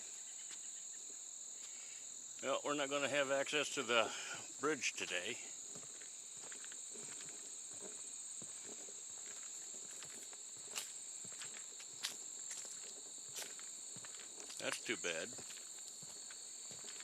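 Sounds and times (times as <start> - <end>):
high-pitched insect chorus: 0.0 - 17.0
footsteps on wooden boardwalk: 5.6 - 17.0.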